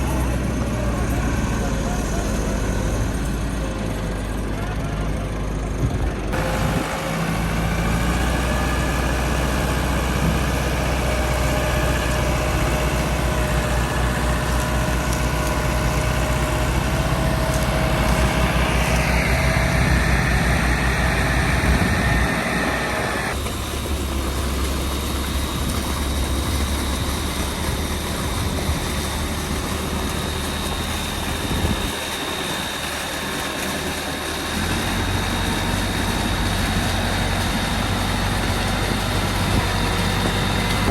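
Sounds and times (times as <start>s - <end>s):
tractor diesel engine running: 0.0s - 40.9s
thin high whine: 15.7s - 23.4s.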